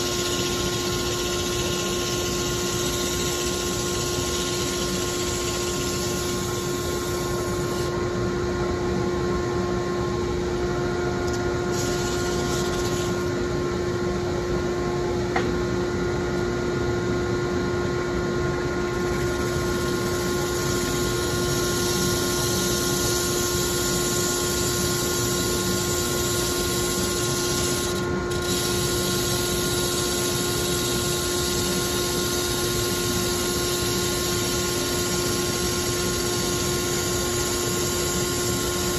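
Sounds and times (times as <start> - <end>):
small electric motor humming: 0.0 - 8.0, 11.7 - 13.3, 18.9 - 38.9.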